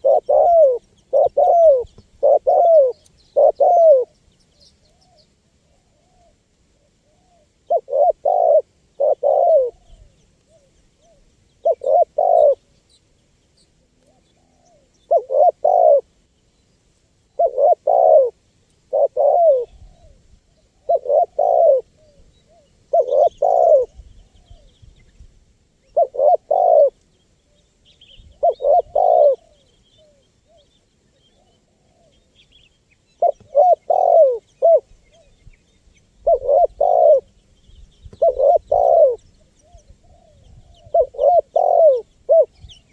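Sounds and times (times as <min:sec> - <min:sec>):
dove cooing: 0:00.0 - 0:04.2, 0:05.0 - 0:12.7, 0:13.9 - 0:16.1, 0:17.3 - 0:24.8, 0:25.8 - 0:27.6, 0:28.3 - 0:32.4, 0:33.2 - 0:35.4, 0:36.2 - 0:37.4, 0:38.1 - 0:42.9
small birds chirping: 0:00.0 - 0:06.4, 0:07.0 - 0:42.9.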